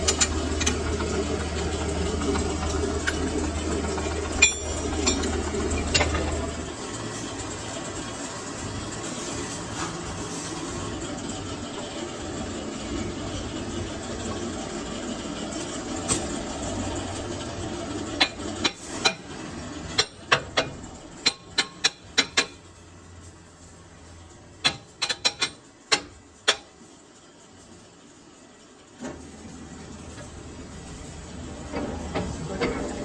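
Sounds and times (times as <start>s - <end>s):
steady machine noise: 0.0s - 18.8s.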